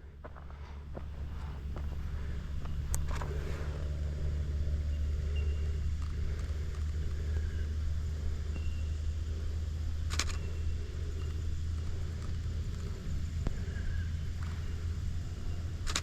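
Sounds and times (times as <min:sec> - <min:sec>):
steady low rumble: 0:00.0 - 0:16.0
sharp clicks: 0:01.9 - 0:04.0, 0:10.0 - 0:13.8.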